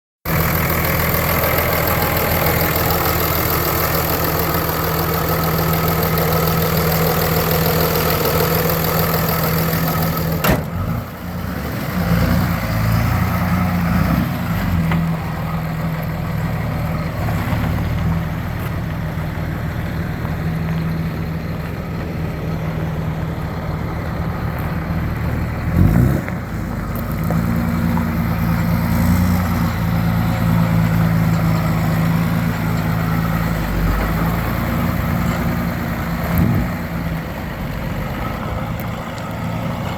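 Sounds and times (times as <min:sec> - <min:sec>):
pickup engine idling: 0:00.2 - 0:11.3, 0:15.1 - 0:28.8.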